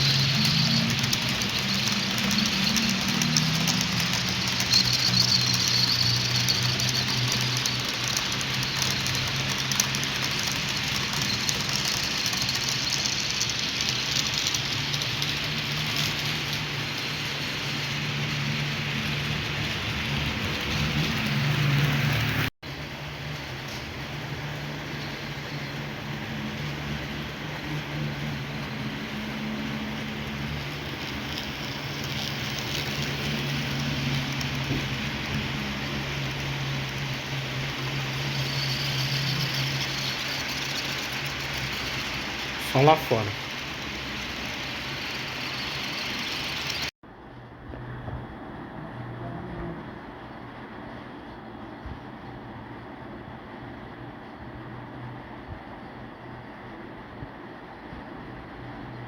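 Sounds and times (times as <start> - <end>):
fine crackling ticks: 0.0 - 16.6
model train motor hum: 0.0 - 22.4, 23.1 - 46.9
wheels rolling on track: 0.0 - 59.0.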